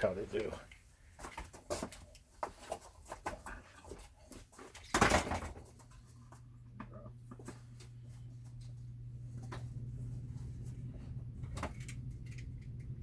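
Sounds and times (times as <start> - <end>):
steady low hum: 5.4 - 13.0.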